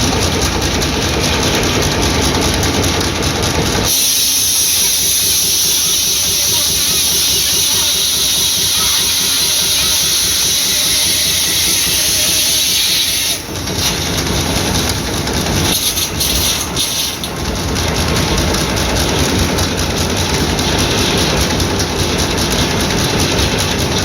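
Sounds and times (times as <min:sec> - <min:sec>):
engine rapid even beat: 0:00.0 - 0:24.0
saw blade hissing through log: 0:03.9 - 0:13.4.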